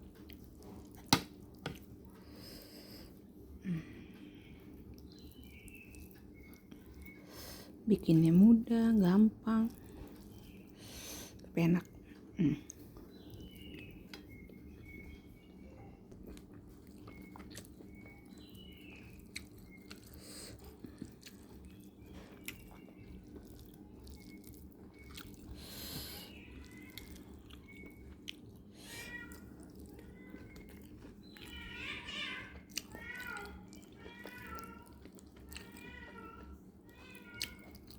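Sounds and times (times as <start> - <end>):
chewing and mouth clicks: 4.8 - 7.2, 16.1 - 31.7, 32.4 - 37.9.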